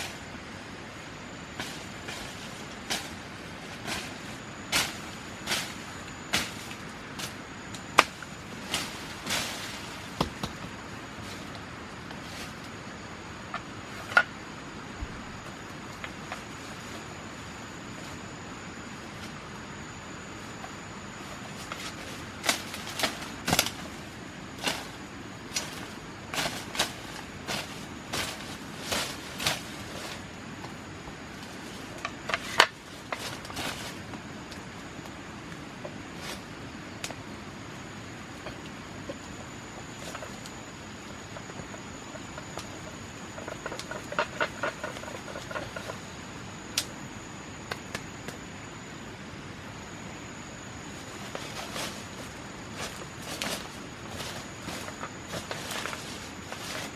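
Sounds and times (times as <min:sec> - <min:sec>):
background hiss: 0:00.0 - 0:56.9
sharp cracks and rustles: 0:21.3 - 0:35.1, 0:38.4 - 0:47.0, 0:51.0 - 0:56.9.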